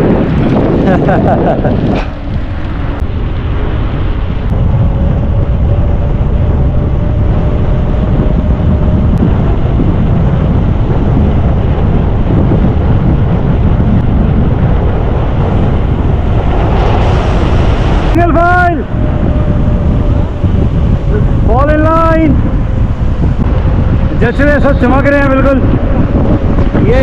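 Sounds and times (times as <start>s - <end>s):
motorcycle engine: 0.0s - 27.0s
wind rush on microphone: 0.0s - 27.0s.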